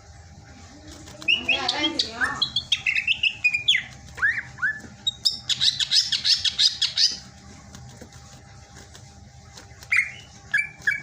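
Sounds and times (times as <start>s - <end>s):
bird whistling and chattering: 1.3s - 7.2s, 9.9s - 11.0s.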